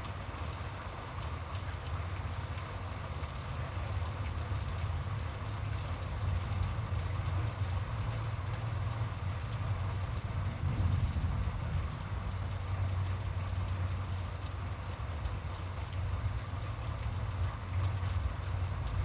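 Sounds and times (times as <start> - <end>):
steady rain: 0.0 - 19.0
low thunder rumble: 9.9 - 13.0.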